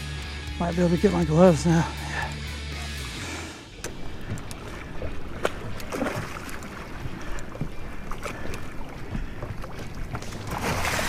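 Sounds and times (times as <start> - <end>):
choppy water slapping boat hull: 3.7 - 11.0
irregular knocks and clicks: 3.8 - 4.7.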